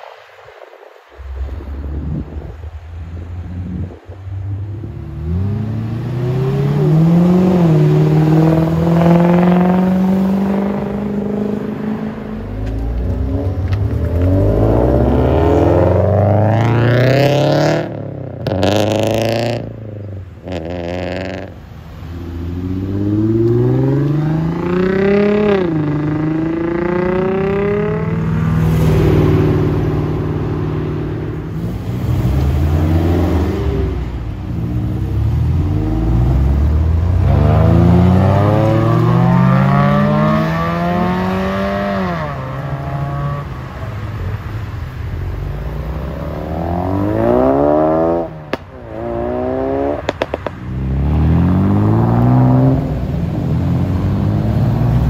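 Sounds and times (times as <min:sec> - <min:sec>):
cars accelerating hard: 0:01.1 - 0:55.0.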